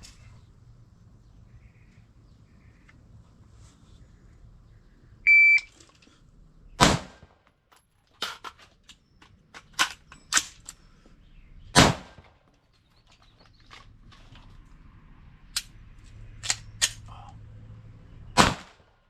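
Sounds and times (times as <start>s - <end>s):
shot timer beep: 5.3s - 5.7s
rifle shot: 6.8s - 7.4s, 11.7s - 12.4s, 18.4s - 19.0s
magazine change clicks and clatter: 7.4s - 10.9s, 12.2s - 14.6s, 15.5s - 17.1s.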